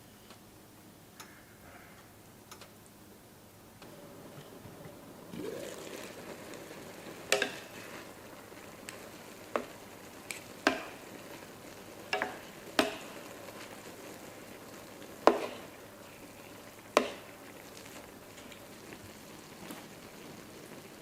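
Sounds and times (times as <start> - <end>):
food sizzling in a pan: 4.0 - 21.0
utensil clacking against pan: 7.3 - 7.6, 10.6 - 11.0, 12.1 - 13.1.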